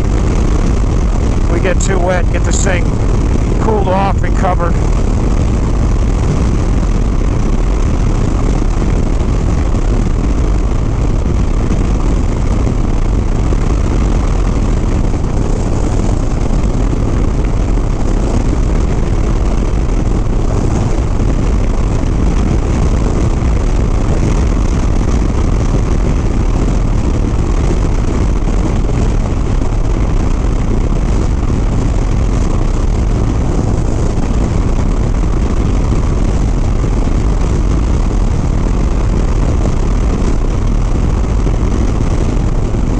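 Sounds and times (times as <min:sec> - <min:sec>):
motorcycle engine running: 0:00.0 - 0:42.9
wind noise on microphone: 0:00.0 - 0:42.9.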